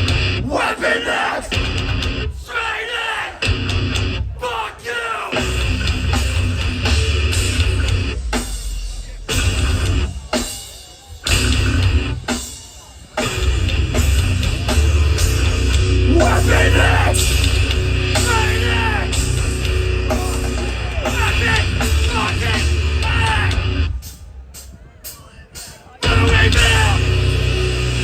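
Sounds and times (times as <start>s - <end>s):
loud distorted rock band: 0.0s - 28.0s
shouted vocals: 0.4s - 3.6s, 4.2s - 5.6s, 16.0s - 19.4s, 20.0s - 23.8s, 26.0s - 27.2s.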